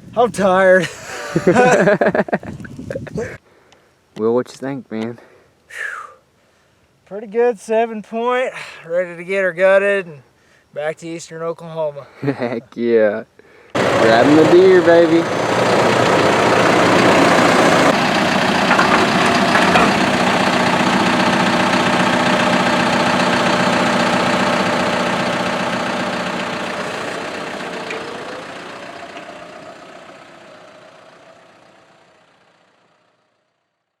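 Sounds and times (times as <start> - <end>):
vehicle engine idling: 13.8 - 33.6.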